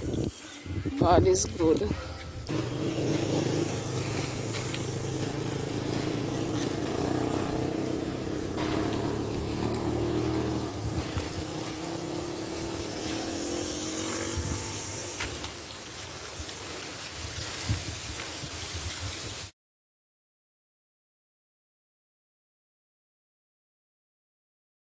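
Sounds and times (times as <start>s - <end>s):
vehicle engine running: 2.4s - 15.9s.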